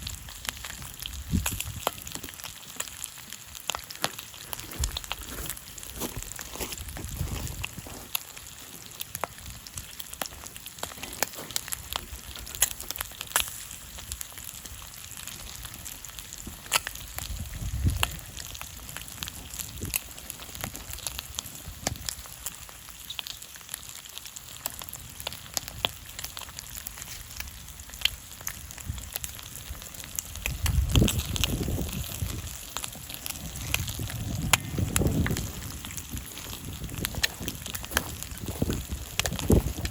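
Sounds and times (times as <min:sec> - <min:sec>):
bacon frying in oil: 0:00.0 - 0:39.9
campfire crackling and popping: 0:00.0 - 0:39.9
low rumbles: 0:28.7 - 0:39.9.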